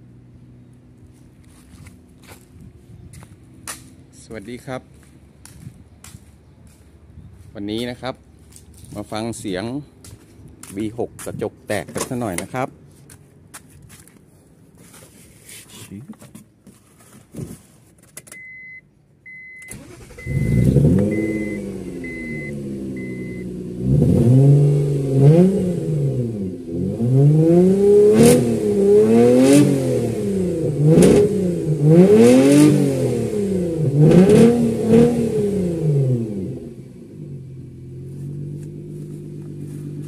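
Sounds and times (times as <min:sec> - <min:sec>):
car warning chime beeping: 0:18.3 - 0:23.5
car engine starting and revving: 0:19.6 - 0:40.0.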